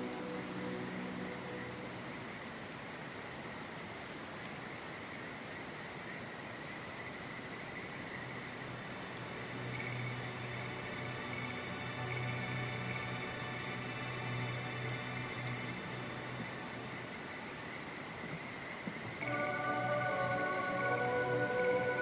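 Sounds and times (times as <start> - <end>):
insects trilling: 0.0 - 22.0
river rushing: 19.2 - 22.0
soft held music notes: 19.2 - 22.0.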